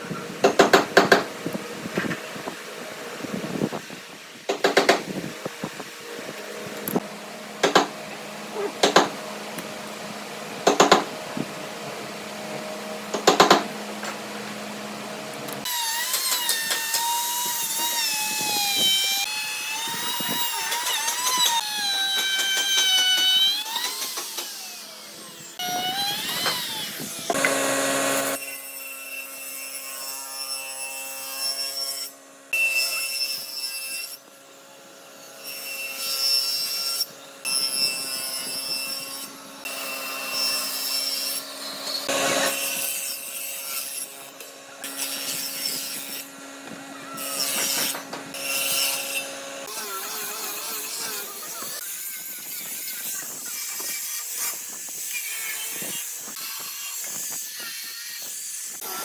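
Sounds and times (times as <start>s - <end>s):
power tool whining: 7.7s - 28.6s, 36.8s - 59.0s
sharp knocks: 8.8s - 9.2s, 10.6s - 11.1s
motor hum: 23.4s - 28.4s.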